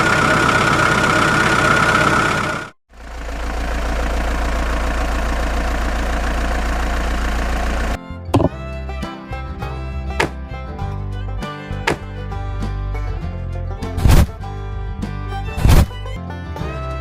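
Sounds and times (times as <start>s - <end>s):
whining engine running: 0.0s - 9.0s
engine idling with low rumble: 0.0s - 17.0s.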